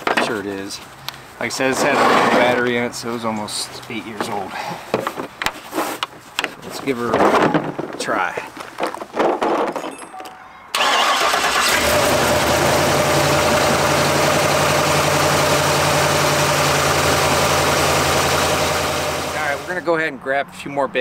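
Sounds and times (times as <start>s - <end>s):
tractor engine cranking: 10.7s - 19.8s
tractor engine idling: 10.8s - 19.9s.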